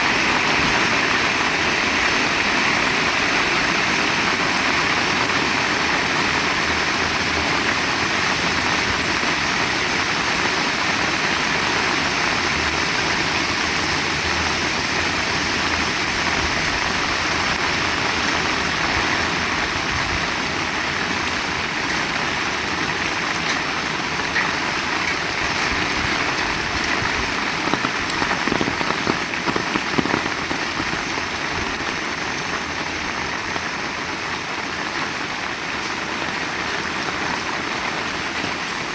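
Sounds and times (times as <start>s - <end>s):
heavy rain hissing: 0.0s - 36.9s
loud raindrop impacts: 25.1s - 32.3s.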